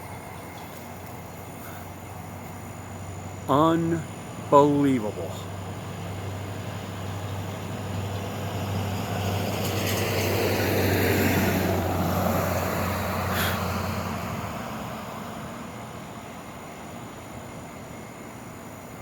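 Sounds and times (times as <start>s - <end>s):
steady low hum: 0.0s - 9.1s
vehicle driving past: 5.5s - 15.4s.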